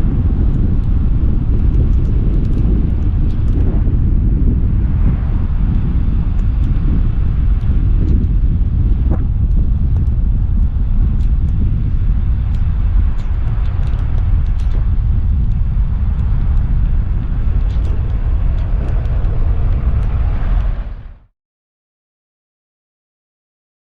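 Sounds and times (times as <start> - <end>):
wind buffeting microphone: 0.0 - 21.3
faint ticks: 1.6 - 3.7, 5.7 - 20.8.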